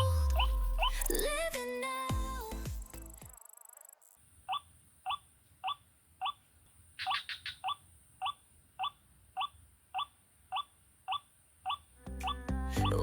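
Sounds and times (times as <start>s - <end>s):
waterhen calling: 4.5s - 13.0s.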